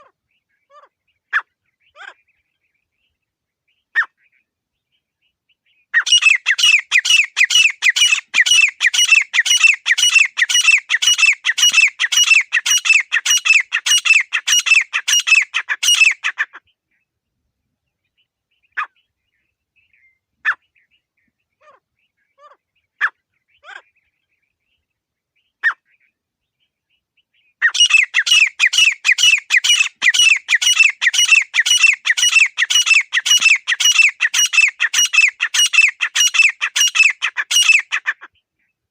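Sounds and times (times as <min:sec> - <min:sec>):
francolin calling: 0:06.0 - 0:16.5, 0:27.6 - 0:38.2.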